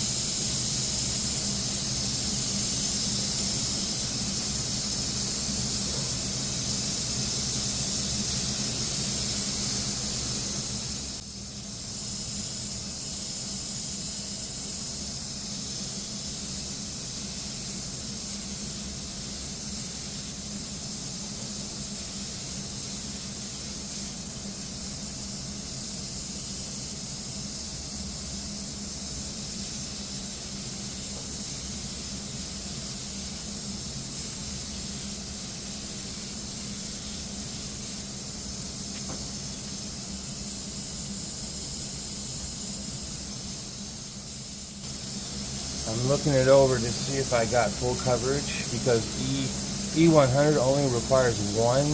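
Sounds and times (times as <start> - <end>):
spray gun hissing: 0.0 - 11.2, 30.0 - 51.9.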